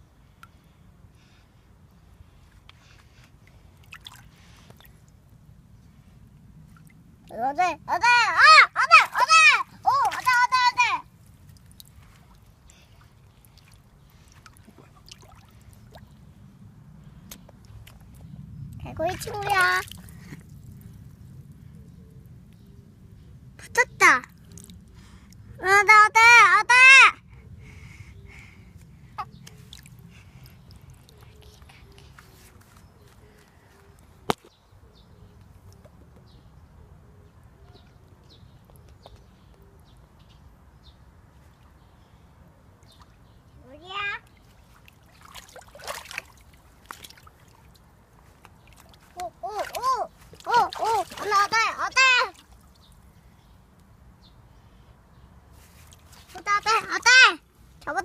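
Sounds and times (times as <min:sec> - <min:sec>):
faint low rumble: 0:00.0 - 0:25.6.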